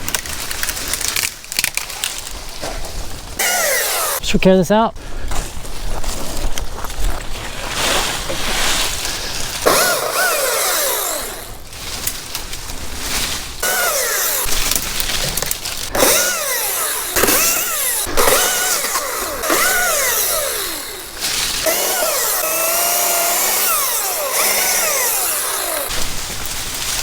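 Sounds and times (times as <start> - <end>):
chainsaw engine revving: 3.4 - 4.2, 9.6 - 11.6, 13.6 - 15.3, 15.9 - 26.1.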